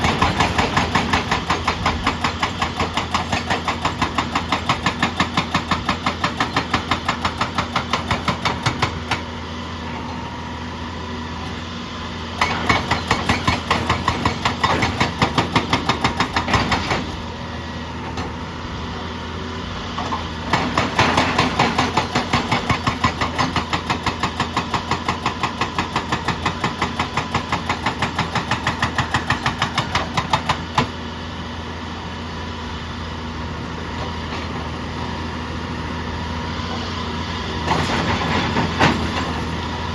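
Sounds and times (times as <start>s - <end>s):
hydraulic rock breaker hammering: 0.0s - 9.4s, 12.4s - 17.2s, 19.9s - 31.0s
diesel engine running: 27.7s - 39.9s.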